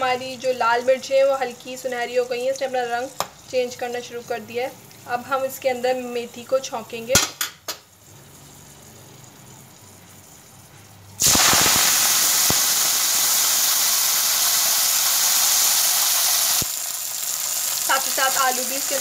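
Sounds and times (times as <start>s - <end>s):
leaves sizzling in hot oil: 11.2s - 19.0s.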